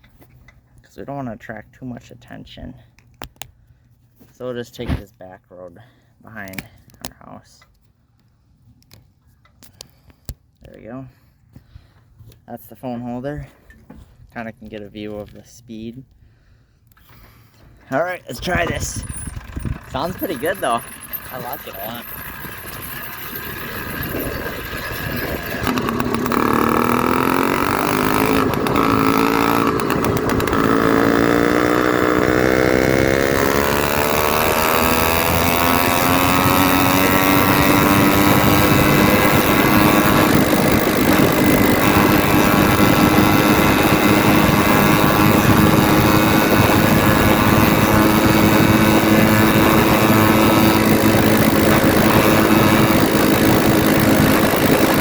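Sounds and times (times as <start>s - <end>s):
two-stroke bicycle engine revving: 17.9s - 55.0s.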